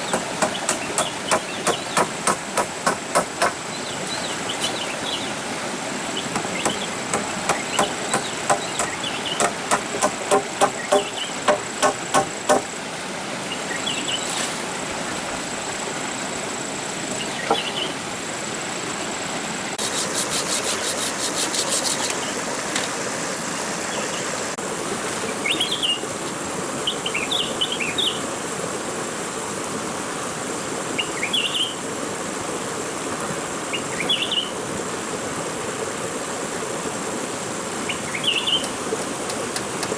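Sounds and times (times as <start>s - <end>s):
hammer strikes: 0.0s - 3.6s, 6.4s - 12.7s
birds chirping: 0.0s - 5.5s, 6.1s - 12.6s, 17.1s - 18.0s, 37.9s - 39.6s
insect drone: 15.4s - 24.6s
rapid insect trill: 19.8s - 24.5s.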